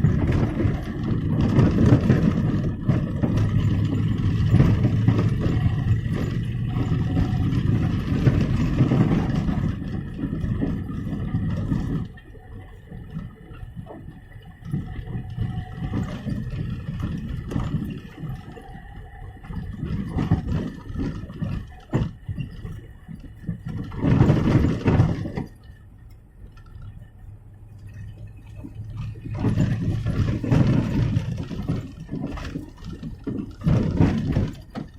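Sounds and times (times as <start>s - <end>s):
car suspension knocking and rattling: 0.0s - 34.9s
tyre rumble on road: 0.0s - 34.9s.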